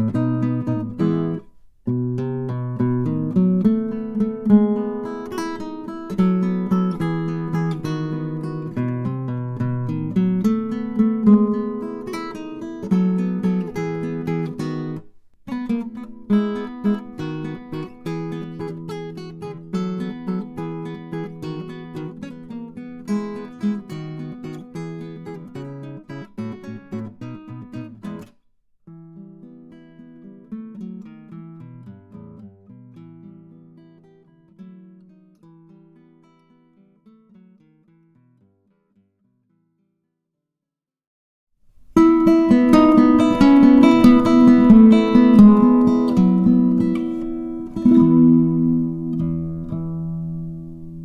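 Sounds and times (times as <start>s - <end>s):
acoustic guitar picking and strumming: 0.0s - 28.3s, 41.7s - 51.0s.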